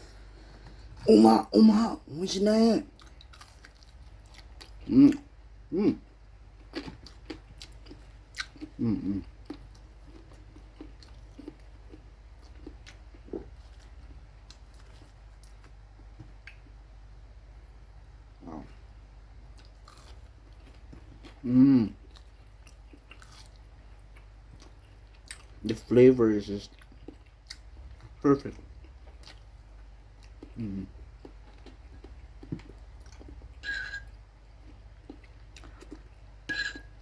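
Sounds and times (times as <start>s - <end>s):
person chewing food: 2.9s - 5.3s, 5.9s - 16.8s, 18.5s - 25.8s, 26.7s - 37.0s
closed-mouth hums: 4.8s - 6.1s, 8.7s - 9.3s, 21.4s - 22.0s.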